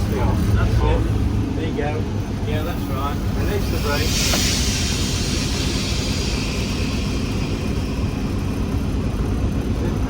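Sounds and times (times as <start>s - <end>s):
diesel locomotive engine rumbling: 0.0s - 10.0s
air hiss: 2.8s - 8.7s.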